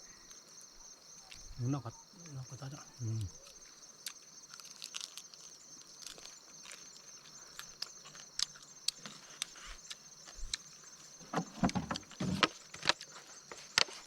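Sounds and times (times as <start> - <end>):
insects buzzing: 0.0 - 14.0
loud knocks: 11.3 - 12.5.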